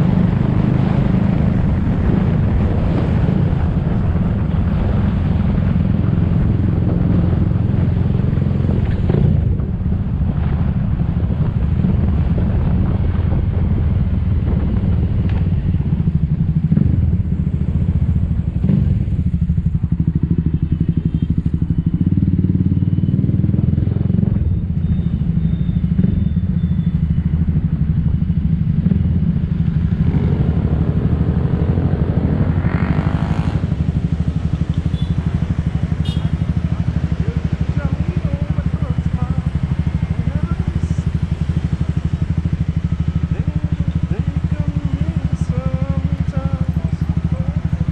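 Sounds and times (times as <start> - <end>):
wind buffeting microphone: 0.0 - 22.7
scooter engine and road noise: 0.0 - 47.9.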